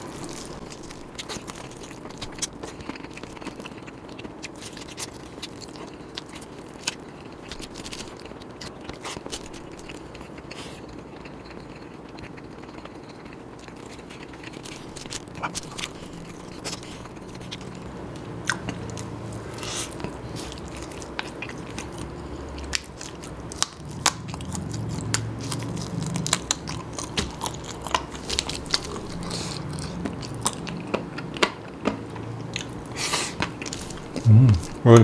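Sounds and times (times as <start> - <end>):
chewing and biting food: 0.0 - 35.0
crunching: 22.6 - 31.6.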